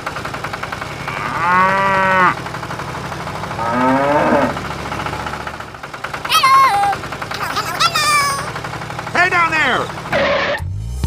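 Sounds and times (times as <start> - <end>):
cow mooing: 0.8 - 2.4, 3.6 - 4.6.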